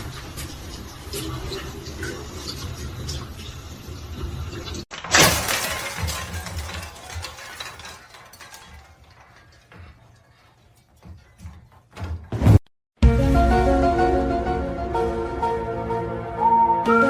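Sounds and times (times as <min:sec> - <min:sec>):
clattering and clinking: 0:04.6 - 0:12.3.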